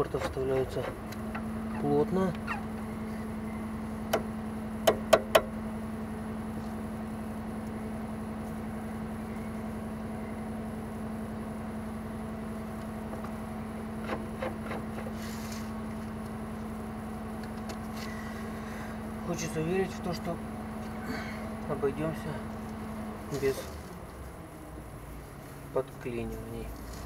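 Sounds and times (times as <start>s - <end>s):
steady low hum: 0.0s - 27.0s
sharp knocks on brake caliper: 4.1s - 5.5s.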